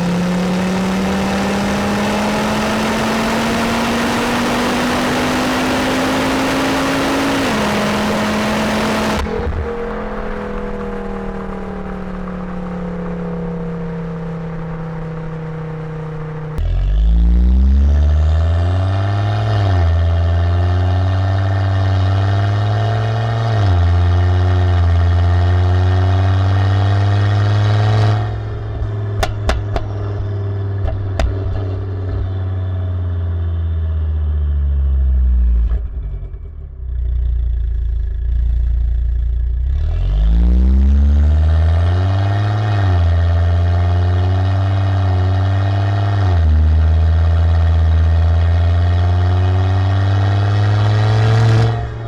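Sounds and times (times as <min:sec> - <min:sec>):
car engine accelerating: 0:00.0 - 0:52.0
exhaust pops: 0:28.1 - 0:32.6.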